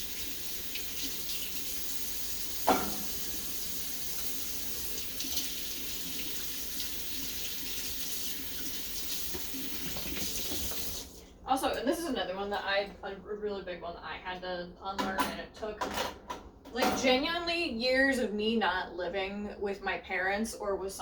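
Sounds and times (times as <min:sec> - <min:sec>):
tap running into sink: 0:02.5 - 0:11.1
sharp clank: 0:02.7 - 0:03.2.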